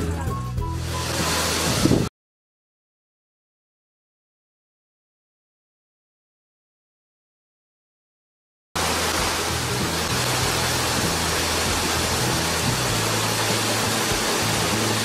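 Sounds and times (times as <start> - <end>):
low background music notes: 0.0 - 2.1, 8.8 - 15.0
waterfall rushing: 0.8 - 2.1, 8.8 - 15.0.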